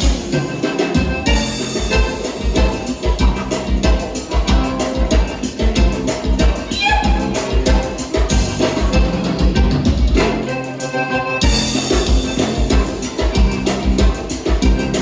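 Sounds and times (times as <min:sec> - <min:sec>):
accordion: 0:00.0 - 0:15.0
bass: 0:00.0 - 0:15.0
kick drum beat: 0:01.3 - 0:10.2.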